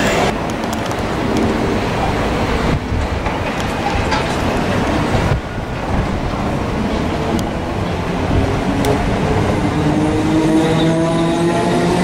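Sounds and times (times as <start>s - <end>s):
wheels clicking over rail joints: 0.0s - 9.3s
train wheels rumbling on rails: 0.0s - 12.0s.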